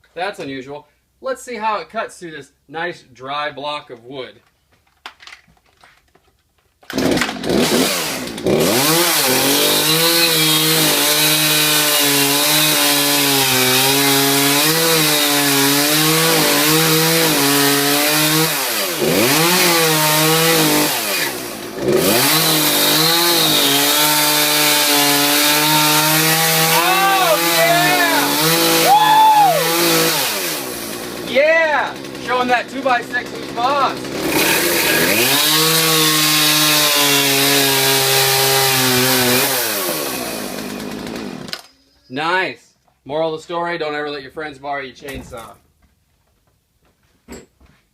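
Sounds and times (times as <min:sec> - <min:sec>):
chainsaw cutting wood: 0:06.8 - 0:41.8.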